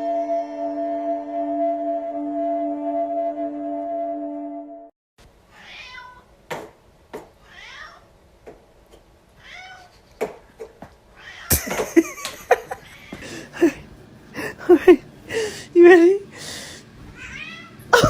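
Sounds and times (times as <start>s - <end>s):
cat meowing: 5.5s - 6.3s, 7.4s - 8.1s, 9.4s - 9.9s, 11.2s - 11.5s, 17.2s - 18.0s.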